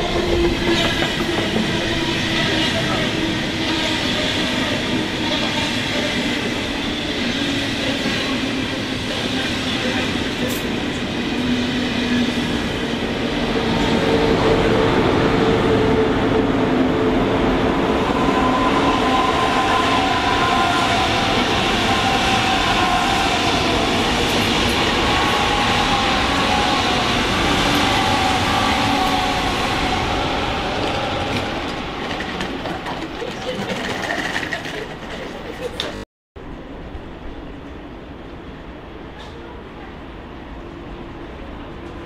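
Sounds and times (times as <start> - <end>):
high-speed train passing: 0.0 - 42.0.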